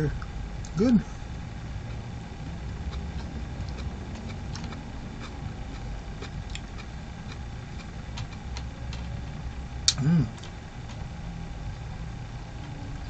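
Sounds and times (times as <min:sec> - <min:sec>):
low hum: 0:00.0 - 0:13.0
chewing with mouth clicks: 0:02.9 - 0:09.0.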